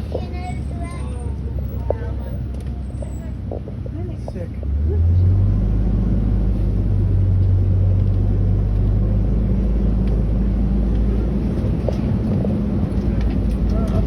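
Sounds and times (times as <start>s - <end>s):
truck engine droning: 0.0s - 14.0s.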